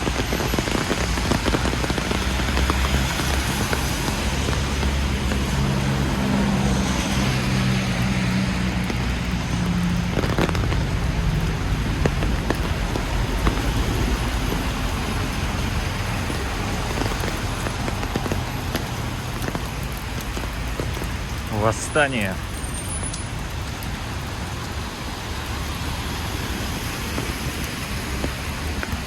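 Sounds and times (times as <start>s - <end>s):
vehicle engine humming: 0.0s - 22.6s
rain hissing: 0.0s - 29.0s
tyres on wet road: 0.0s - 29.0s.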